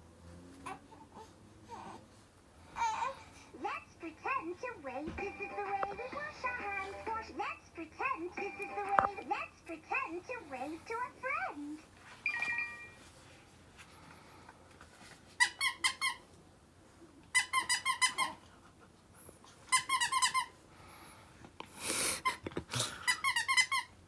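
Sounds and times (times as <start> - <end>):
squeaky dog toy squeaking: 15.4 - 16.3, 17.3 - 18.4, 19.7 - 20.6, 23.1 - 24.0.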